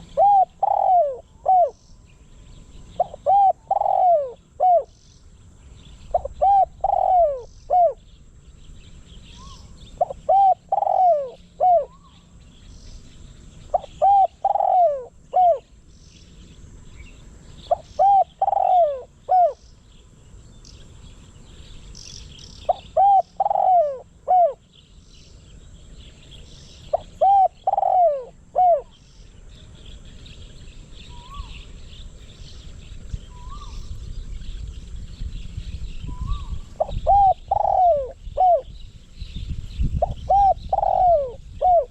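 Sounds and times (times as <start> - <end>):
dove cooing: 0.0 - 1.8, 2.9 - 5.0, 6.1 - 8.0, 9.4 - 12.2, 13.7 - 15.7, 17.6 - 19.6, 22.6 - 24.6, 26.9 - 29.0, 36.1 - 38.7, 40.0 - 41.9
small birds chirping faintly: 0.0 - 41.9.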